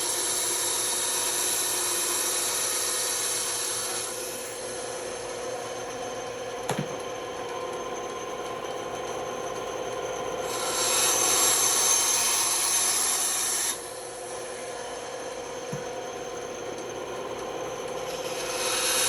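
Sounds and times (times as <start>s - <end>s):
band saw cutting wood: 0.0s - 4.9s, 10.4s - 14.7s, 15.7s - 19.0s.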